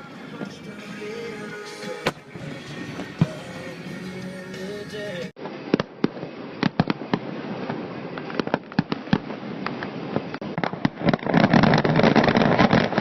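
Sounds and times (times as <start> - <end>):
fireworks popping and banging: 5.4 - 13.0.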